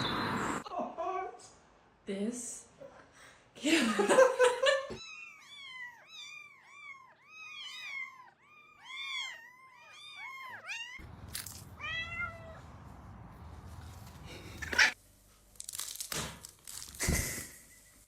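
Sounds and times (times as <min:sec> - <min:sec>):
cat meowing: 0:05.0 - 0:11.0, 0:11.7 - 0:12.8.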